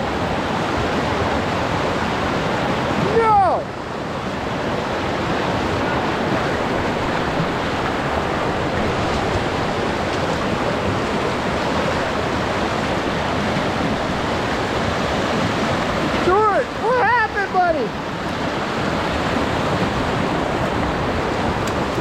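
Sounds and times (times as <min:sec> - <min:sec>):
floodwater creek rushing: 0:00.0 - 0:22.0.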